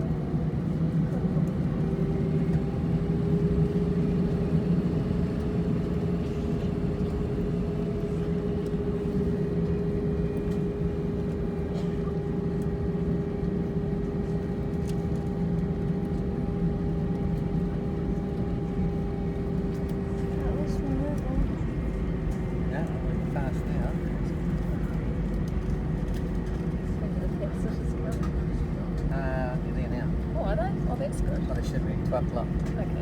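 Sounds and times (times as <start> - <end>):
low engine and air conditioning hum: 0.0 - 33.0.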